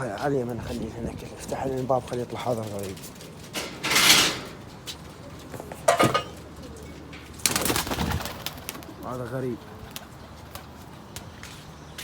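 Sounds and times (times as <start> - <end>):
pigeons cooing: 1.2 - 11.0
wings fluttering: 6.4 - 9.0.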